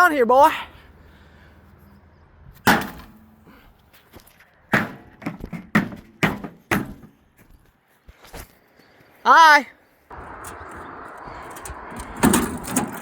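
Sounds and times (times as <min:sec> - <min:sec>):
hard knocks: 0:04.7 - 0:07.1.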